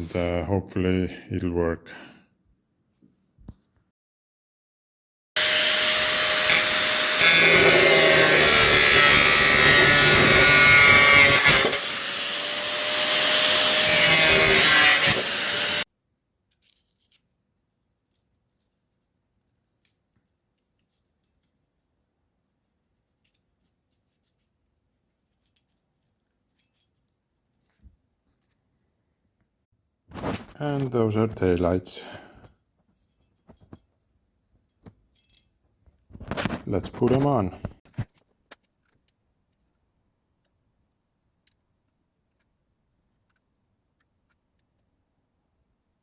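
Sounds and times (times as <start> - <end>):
power tool cutting or grinding: 5.4 - 15.9.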